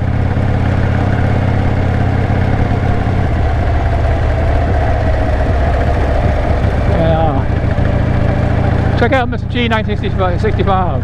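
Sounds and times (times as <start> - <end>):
motorcycle engine running: 0.0 - 11.0
rushing wind noise: 0.0 - 11.0.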